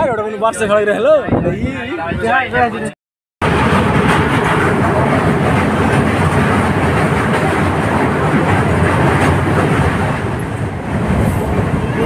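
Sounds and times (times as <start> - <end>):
train wheels rumbling on rails: 3.4 - 12.0.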